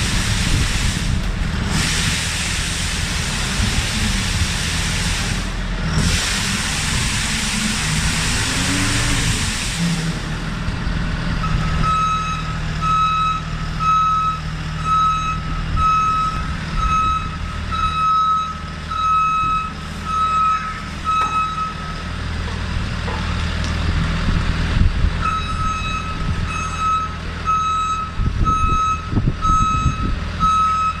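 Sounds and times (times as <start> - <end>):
loud hiss: 0.0 - 10.3
reversing alarm beeping: 11.4 - 22.2, 25.2 - 31.0.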